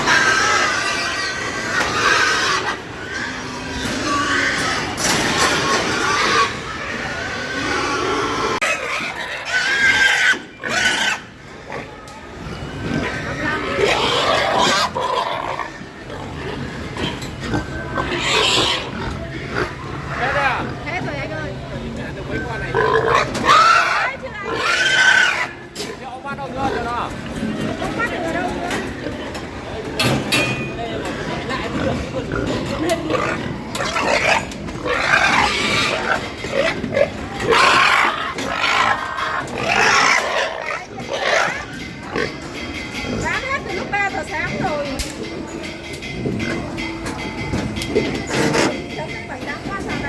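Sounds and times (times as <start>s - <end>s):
pig harsh cry: 0.0s - 21.0s, 22.7s - 28.2s, 31.0s - 42.4s
pigs calling: 0.0s - 21.4s, 22.3s - 29.8s, 30.8s - 46.8s.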